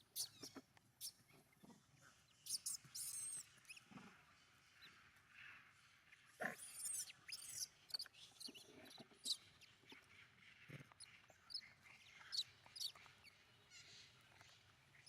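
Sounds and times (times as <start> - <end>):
high-pitched animal chirps: 2.5 - 3.8.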